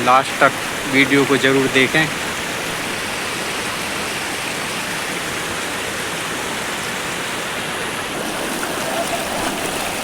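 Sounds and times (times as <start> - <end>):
waterfall splashing into pool: 3.0 - 10.0.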